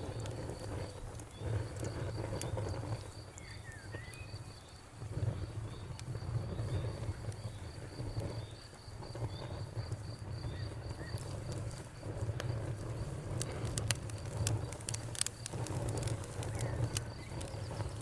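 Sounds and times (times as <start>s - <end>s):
wood fire crackling and popping: 0.0s - 18.0s
faint bird chirps: 3.3s - 5.9s.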